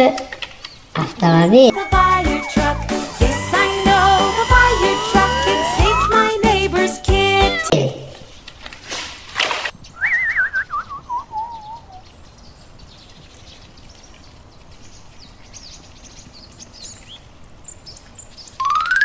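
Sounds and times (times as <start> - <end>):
wobbling whistle-like tone: 3.9 - 6.4, 10.0 - 12.0, 18.6 - 19.0
faint high bird chirps: 9.8 - 19.0.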